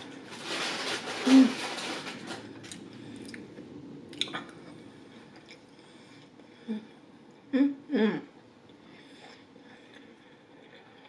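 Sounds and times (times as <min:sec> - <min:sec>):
wet squishy mouth chewing: 0:04.1 - 0:05.7.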